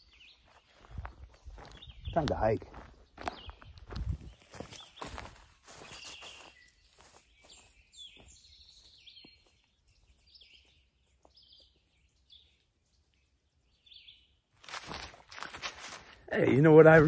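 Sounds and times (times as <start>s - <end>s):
faint birds chirping: 0.0s - 15.5s
footsteps on leaves: 0.2s - 10.8s, 14.6s - 17.0s.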